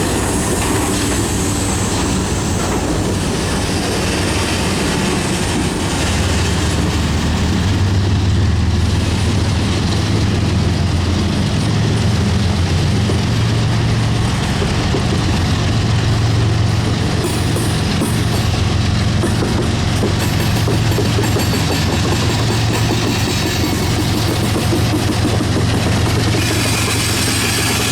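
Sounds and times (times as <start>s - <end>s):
train wheels rumbling on rails: 0.0s - 27.9s.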